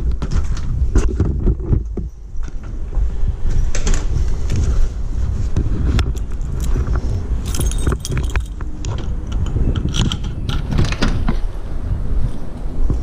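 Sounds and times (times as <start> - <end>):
wind buffeting microphone: 0.0 - 13.0
keys jangling: 7.4 - 8.6.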